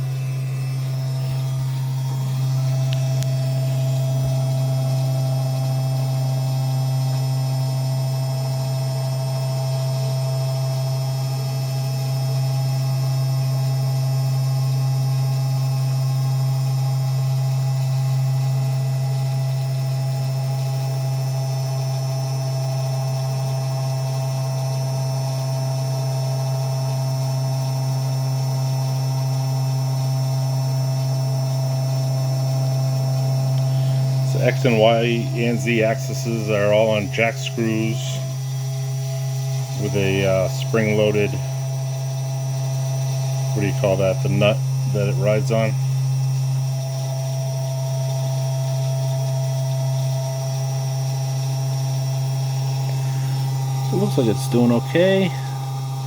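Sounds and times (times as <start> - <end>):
engraver motors humming: 0.0 - 10.0, 29.8 - 56.0.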